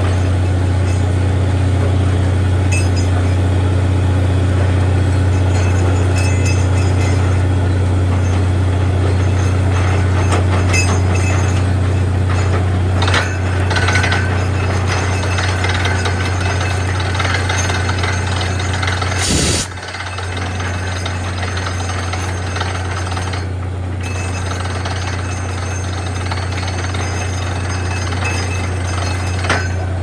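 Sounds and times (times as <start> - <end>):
drilling rig engine drone: 0.0 - 30.0
metallic clinking and rattling: 5.3 - 7.5, 9.1 - 30.0.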